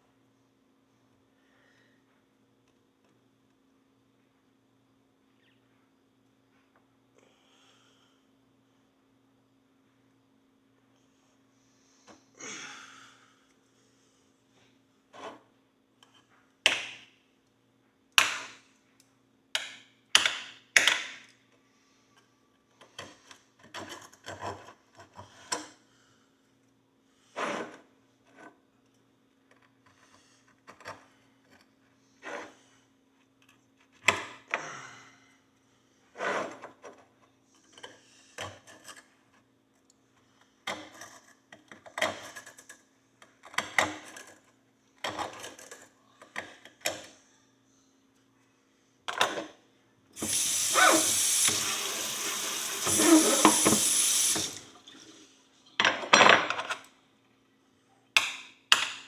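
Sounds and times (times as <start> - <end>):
running water rushing: 50.2 - 55.0.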